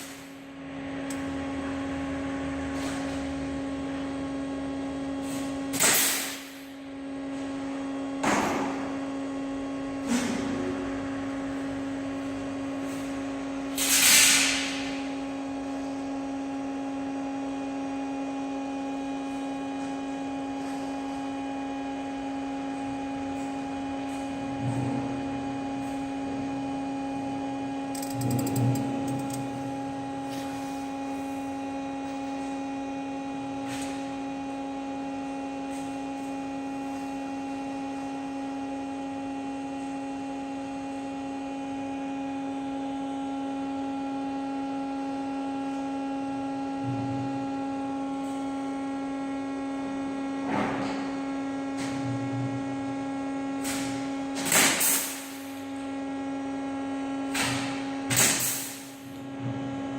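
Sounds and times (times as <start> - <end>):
machinery humming: 21.6 - 33.8.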